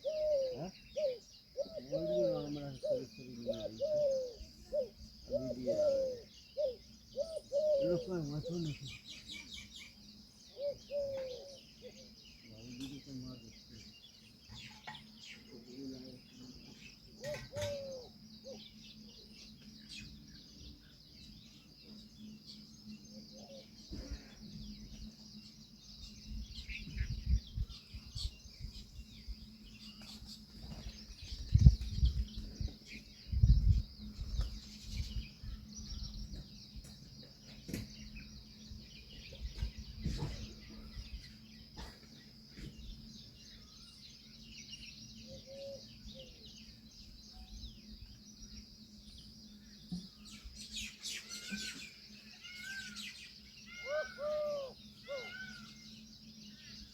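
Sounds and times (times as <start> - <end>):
bird chirps: 0.0 - 56.9.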